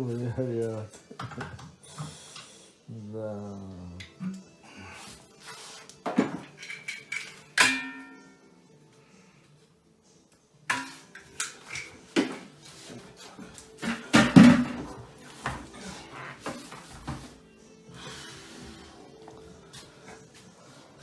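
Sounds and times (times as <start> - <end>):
ringing strike: 7.7 - 8.4.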